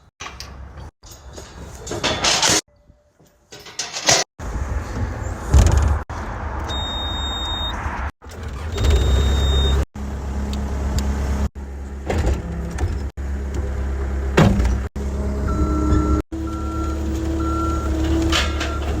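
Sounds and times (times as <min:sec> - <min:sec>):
backup alarm beeping: 0:06.7 - 0:07.8, 0:08.7 - 0:09.9, 0:15.4 - 0:19.0
diesel engine running: 0:08.2 - 0:19.0.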